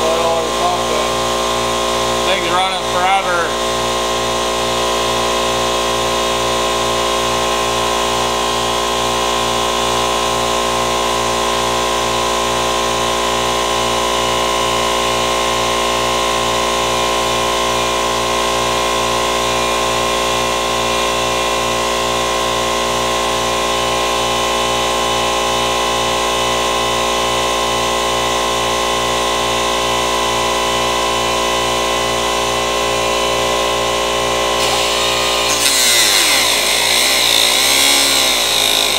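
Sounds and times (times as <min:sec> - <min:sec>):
power tool running: 0:00.0 - 0:21.8, 0:31.3 - 0:38.9.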